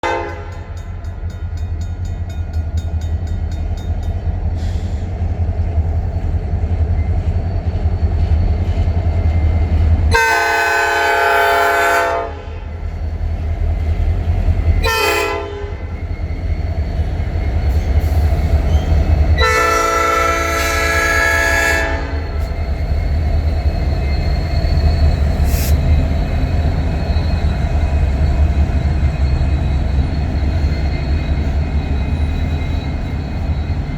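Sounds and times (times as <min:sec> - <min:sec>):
locomotive air horn blasts: 0:00.0 - 0:00.8, 0:10.1 - 0:12.7, 0:14.8 - 0:15.9, 0:19.4 - 0:22.4.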